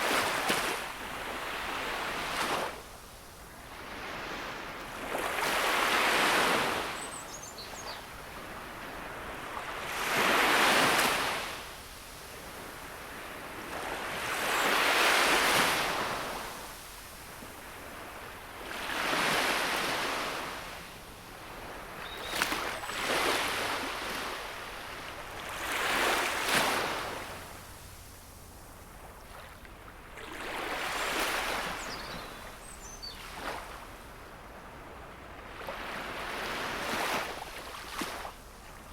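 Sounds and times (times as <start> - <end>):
sea waves breaking on shore: 0.0 - 38.9.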